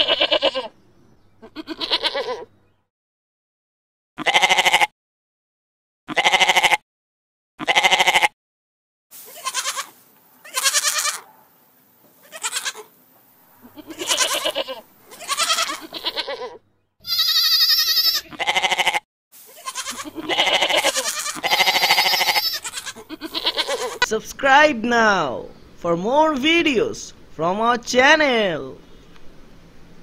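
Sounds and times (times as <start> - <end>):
goats bleating: 0.0 - 0.7, 1.4 - 2.5, 4.2 - 4.9, 6.1 - 6.8, 7.6 - 8.3, 9.2 - 11.3, 12.2 - 12.9, 13.6 - 24.1.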